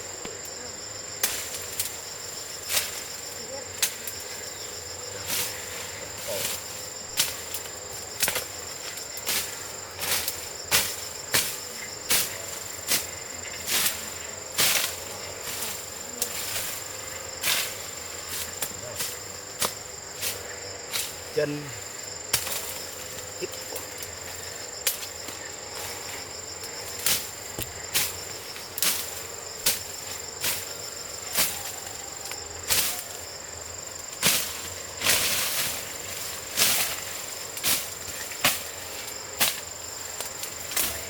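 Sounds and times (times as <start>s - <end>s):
insects chirring: 0.0s - 41.0s
hand tool chopping: 18.4s - 19.8s.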